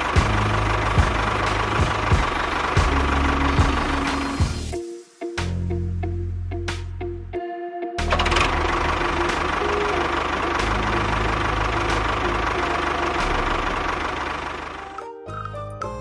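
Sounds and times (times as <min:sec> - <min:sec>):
small engine running: 0:00.0 - 0:04.7, 0:08.0 - 0:15.0
music: 0:00.0 - 0:16.0.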